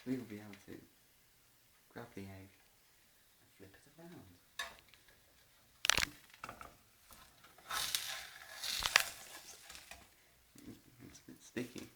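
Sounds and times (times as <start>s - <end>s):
spatula scraping in frying pan: 7.5s - 10.0s.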